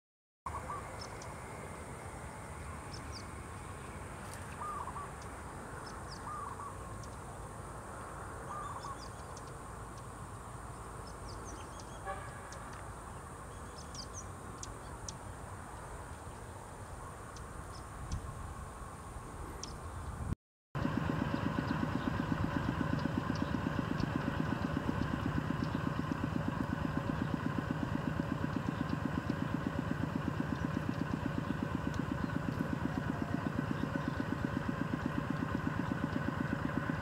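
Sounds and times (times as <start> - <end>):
bird giving short calls: 4.6 - 5.2.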